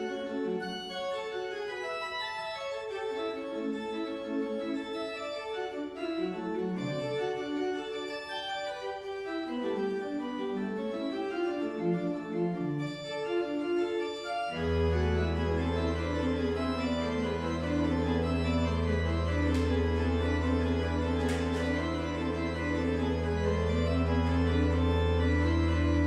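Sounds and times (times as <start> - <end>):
organ music: 0.0 - 26.0.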